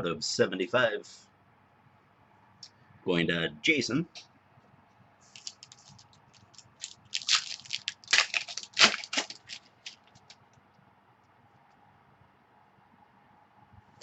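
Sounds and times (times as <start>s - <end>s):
plastic crinkling: 5.3s - 10.6s.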